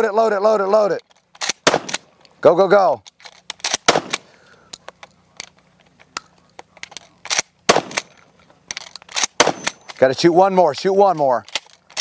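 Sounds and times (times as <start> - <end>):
shells loaded into a gun: 0.7 - 12.0
shotgun shots: 1.4 - 2.1, 3.6 - 4.3, 7.3 - 8.1, 9.2 - 9.9.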